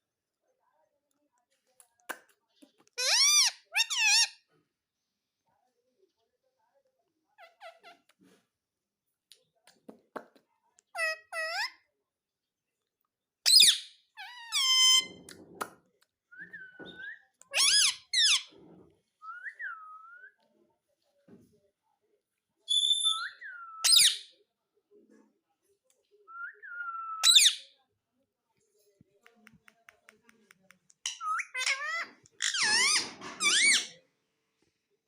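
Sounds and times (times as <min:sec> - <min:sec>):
parrot screeching: 0:03.0 - 0:04.4, 0:13.5 - 0:15.2, 0:31.1 - 0:33.9
parrot chattering: 0:31.0 - 0:33.9.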